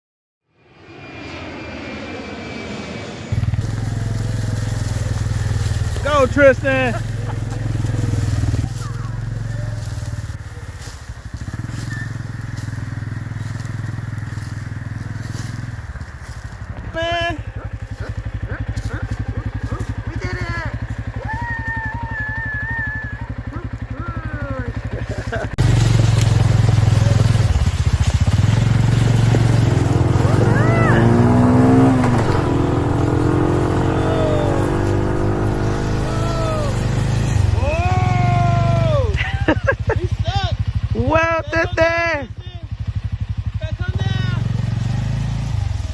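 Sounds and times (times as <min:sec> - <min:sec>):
atv engine throbbing: 0:03.3 - 0:45.9
person calling out: 0:16.8 - 0:17.6, 0:20.0 - 0:24.8.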